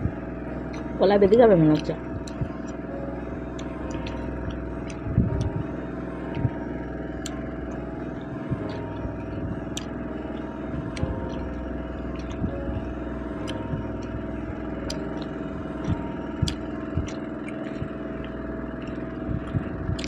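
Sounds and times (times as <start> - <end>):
soft low knocks: 0.0 - 20.0
steady mechanical hum: 0.0 - 20.0.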